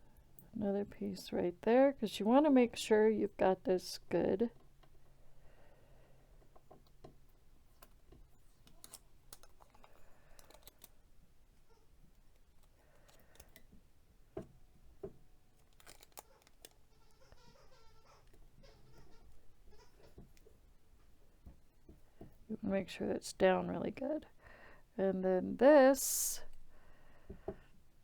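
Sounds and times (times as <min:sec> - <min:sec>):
soft clicks and rustles: 0:06.4 - 0:11.0, 0:12.1 - 0:17.4.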